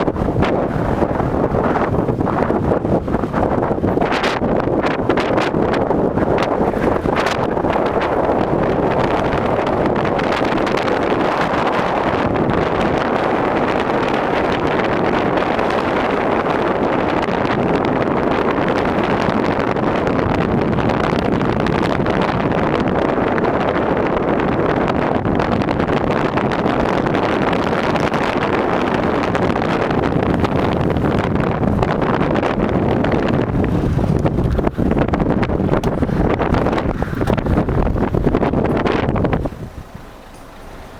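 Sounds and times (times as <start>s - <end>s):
strong wind across microphone: 0.0s - 40.9s.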